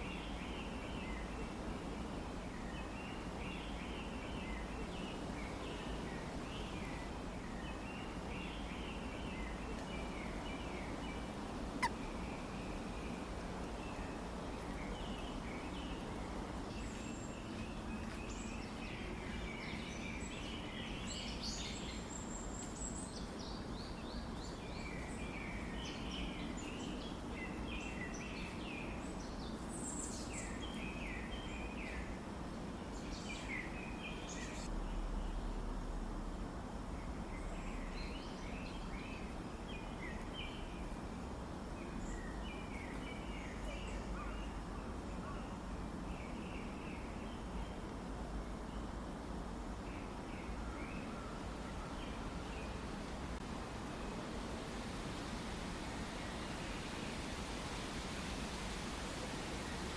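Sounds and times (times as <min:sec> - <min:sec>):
birds chirping: 0:02.5 - 0:34.7.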